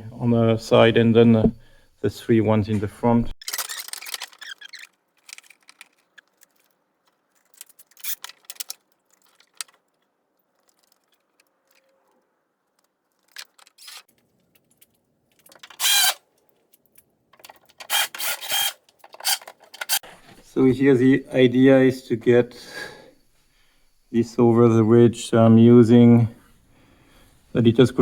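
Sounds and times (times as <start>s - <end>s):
metal hardware clicking and rattling: 3.4s - 12.1s, 13.1s - 20.0s.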